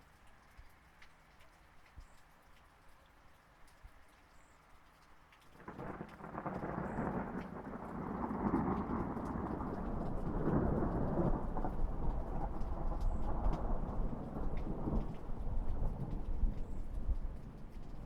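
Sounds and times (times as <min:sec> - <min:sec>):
light rain: 0:00.0 - 0:18.0
thunder rumbling: 0:05.7 - 0:18.0.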